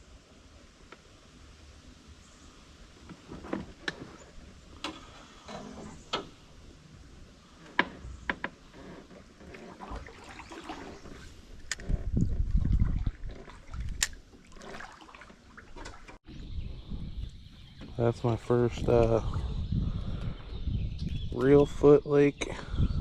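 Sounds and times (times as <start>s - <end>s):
low thumping and rumble: 11.7s - 14.0s.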